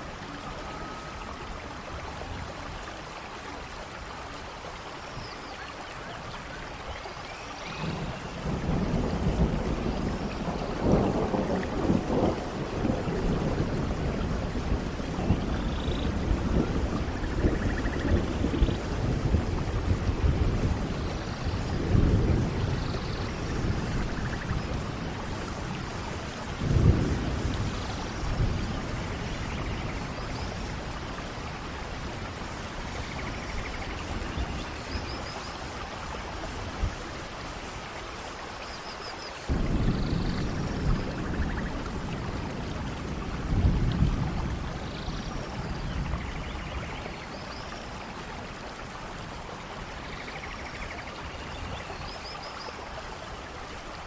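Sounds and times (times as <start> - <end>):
heavy rain: 0.0 - 54.0
thunder rumbling: 7.8 - 37.3, 39.5 - 51.9.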